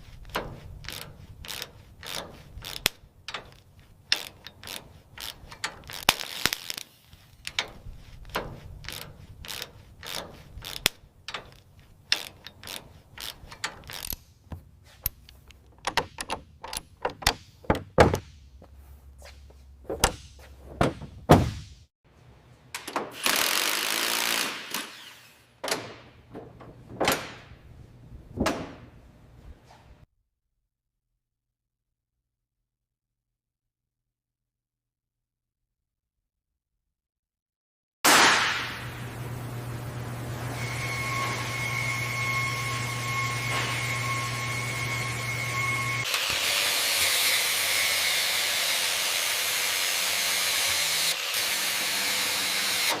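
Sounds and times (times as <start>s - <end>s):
mechanical clicks and metal knocks: 7.4s - 18.2s.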